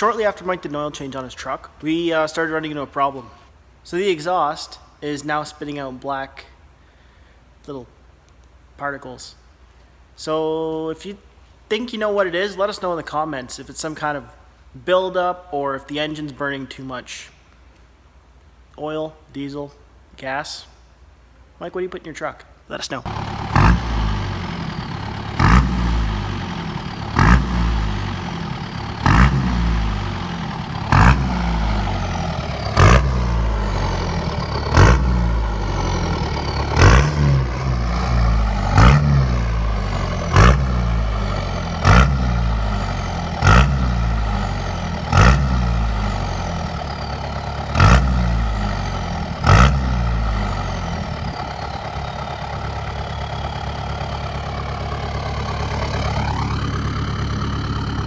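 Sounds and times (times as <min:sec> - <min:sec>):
diesel engine idling: 0:00.0 - 0:03.6, 0:23.1 - 0:58.0
diesel engine revving: 0:23.1 - 0:58.0.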